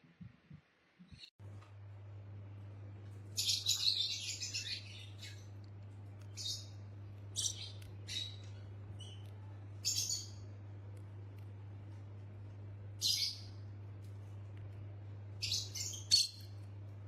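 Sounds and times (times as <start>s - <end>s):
low hum: 1.4s - 17.0s
parrot chirping: 3.4s - 10.6s, 13.0s - 13.6s, 15.4s - 16.7s.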